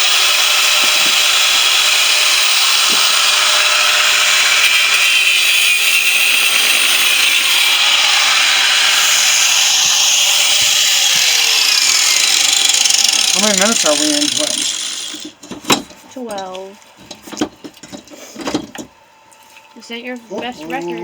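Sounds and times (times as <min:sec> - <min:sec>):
angle grinder cutting steel: 0:00.0 - 0:15.4.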